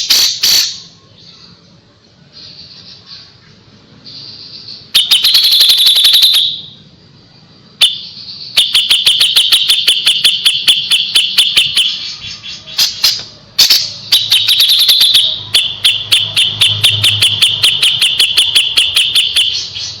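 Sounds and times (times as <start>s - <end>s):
ringing tone: 4.9s - 6.8s, 13.8s - 19.7s.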